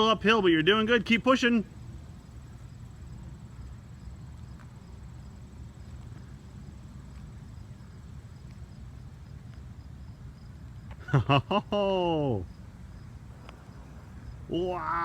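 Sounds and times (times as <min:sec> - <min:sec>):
insects chirping: 0:00.0 - 0:15.0
constant high trill: 0:11.7 - 0:15.0.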